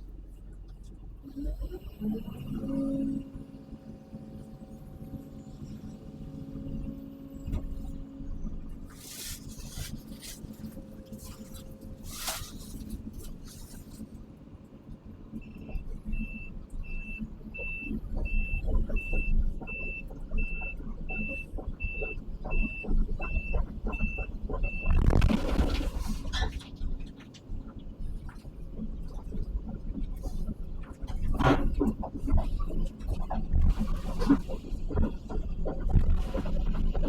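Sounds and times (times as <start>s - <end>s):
excavator diesel engine running: 0.0s - 27.4s.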